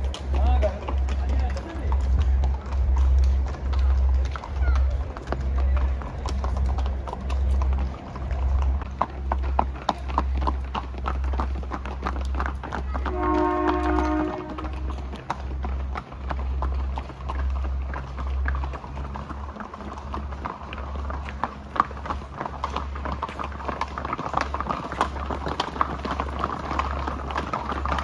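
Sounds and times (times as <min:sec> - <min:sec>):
low rumble: 0:00.0 - 0:22.4
horses' hooves clip-clopping: 0:00.0 - 0:28.0.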